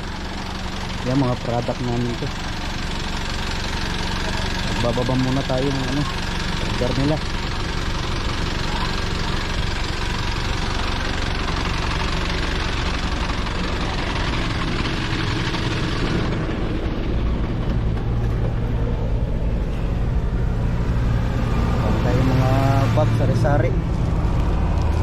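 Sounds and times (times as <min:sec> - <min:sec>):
vehicle engine rumble: 0:00.0 - 0:25.0
road and wind noise hiss: 0:15.0 - 0:25.0.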